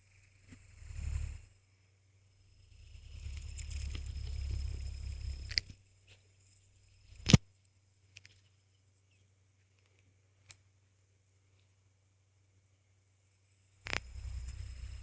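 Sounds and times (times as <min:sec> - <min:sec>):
hand spinner whirring: 0:02.4 - 0:07.3, 0:13.8 - 0:15.0
sharp loud click: 0:07.2 - 0:07.5.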